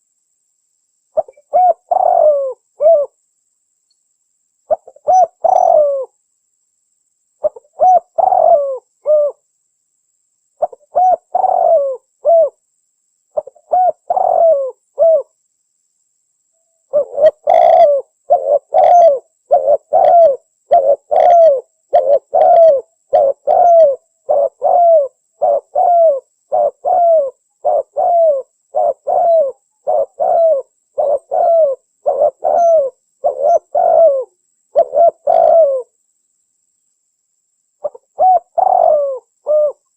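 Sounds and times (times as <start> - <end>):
dove cooing: 1.2 - 3.2, 4.7 - 6.1, 7.4 - 9.4, 10.6 - 12.6, 13.4 - 15.3, 16.9 - 36.0, 37.8 - 39.9.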